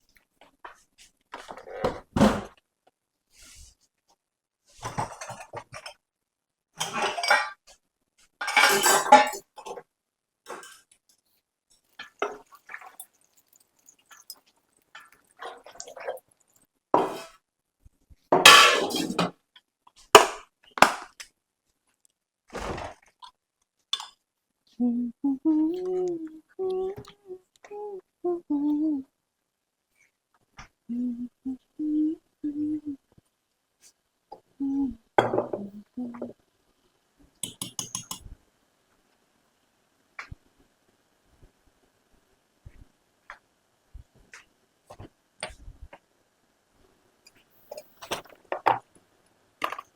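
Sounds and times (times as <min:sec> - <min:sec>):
kitchenware clinking: 0:06.8 - 0:07.6, 0:08.4 - 0:09.6, 0:18.4 - 0:19.3, 0:24.0 - 0:24.2, 0:37.4 - 0:38.3
person humming: 0:24.8 - 0:29.1, 0:30.9 - 0:33.0, 0:34.6 - 0:36.3.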